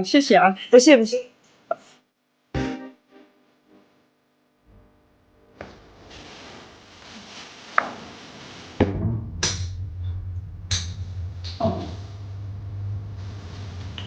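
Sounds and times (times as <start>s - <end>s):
low steady hum: 4.6s - 14.0s.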